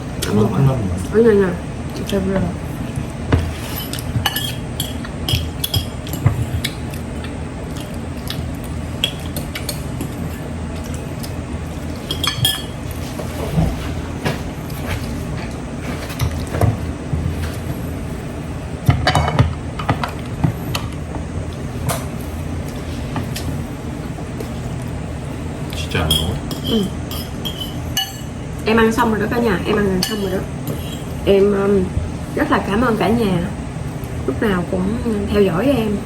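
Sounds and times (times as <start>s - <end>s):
steady low hum: 0.0s - 36.0s
forks and dishes clinking: 3.6s - 6.3s, 12.0s - 12.8s, 26.0s - 28.3s.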